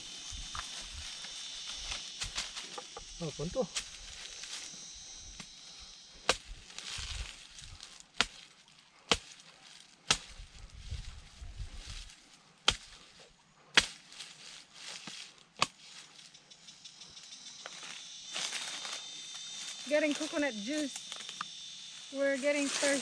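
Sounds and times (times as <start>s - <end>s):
machete chopping coconut: 8.1s - 8.5s, 9.1s - 10.4s, 12.6s - 13.0s, 13.7s - 14.0s, 15.6s - 15.8s.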